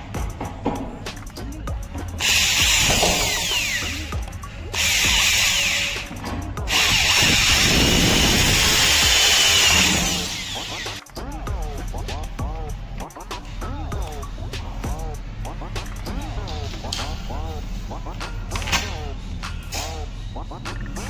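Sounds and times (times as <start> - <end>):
music playing: 0.0 - 21.0
power tool running: 2.2 - 10.9.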